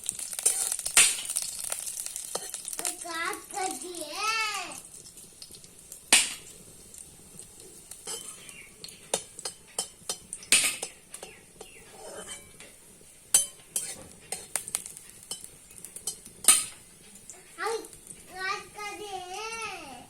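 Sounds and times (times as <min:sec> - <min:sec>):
garlic frying in oil: 0:00.0 - 0:20.0
metal spatula scraping a pan: 0:00.1 - 0:02.8, 0:07.6 - 0:17.6.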